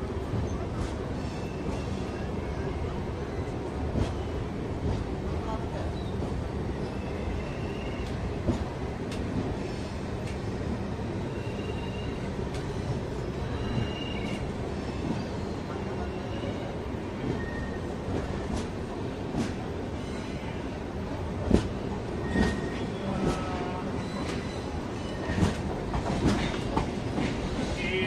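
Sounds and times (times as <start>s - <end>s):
rumble of wheels on rails: 0.0s - 28.0s
train clicks: 3.9s - 4.2s, 8.0s - 9.6s, 10.2s - 10.5s, 12.5s - 13.0s, 18.1s - 19.7s, 21.4s - 23.5s, 25.1s - 27.9s.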